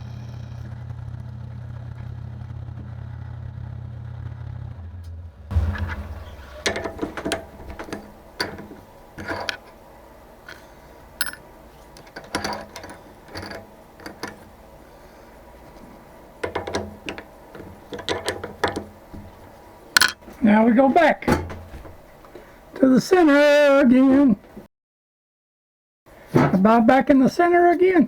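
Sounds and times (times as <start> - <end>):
low machine hum: 0.0 - 22.8
light metallic clicks and rattles: 5.5 - 22.6.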